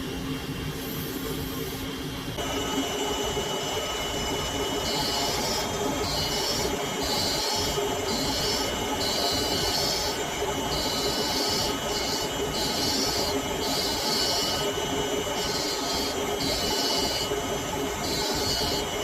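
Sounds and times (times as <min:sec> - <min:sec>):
blade grinding hiss: 0:03.9 - 0:19.0
sharpening grinder motor: 0:04.0 - 0:19.0.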